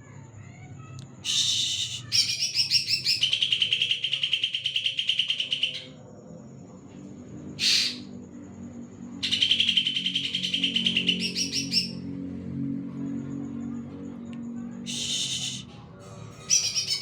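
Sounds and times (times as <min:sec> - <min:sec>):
bird singing fast trills: 0:01.2 - 0:06.0, 0:07.6 - 0:08.1, 0:09.2 - 0:12.1, 0:14.9 - 0:15.6, 0:16.4 - 0:17.0.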